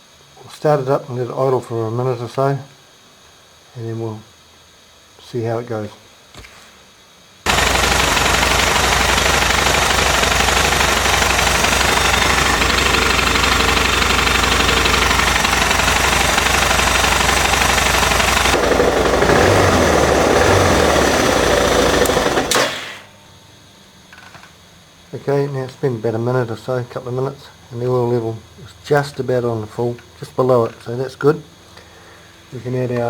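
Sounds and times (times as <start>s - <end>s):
motorcycle engine idling: 7.5s - 22.5s.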